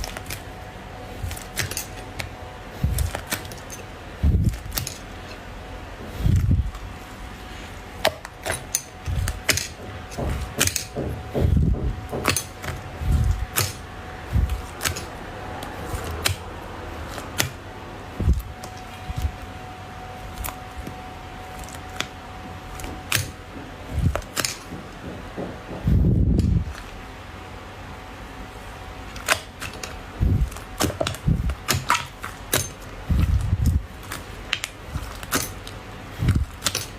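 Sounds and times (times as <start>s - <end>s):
slime squishing: 0.0s - 19.6s, 29.1s - 36.9s.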